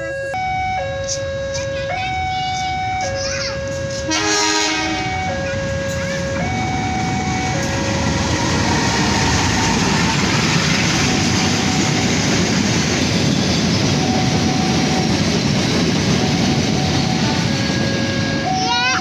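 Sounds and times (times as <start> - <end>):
train wheels rumbling on rails: 1.0 - 19.0.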